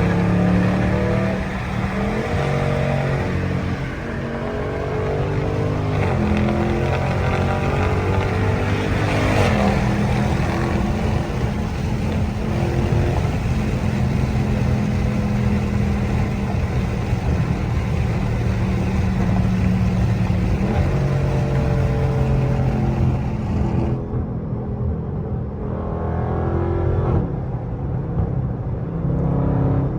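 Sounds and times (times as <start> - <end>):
car engine running: 0.0 - 24.1.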